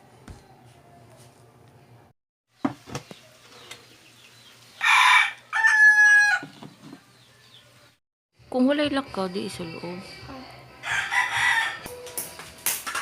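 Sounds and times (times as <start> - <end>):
rooster crowing: 4.8 - 6.5, 10.8 - 11.9.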